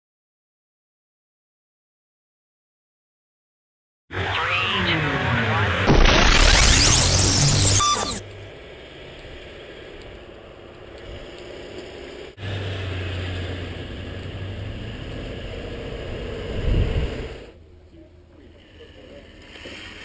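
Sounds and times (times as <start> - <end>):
low engine hum: 4.2 - 19.4.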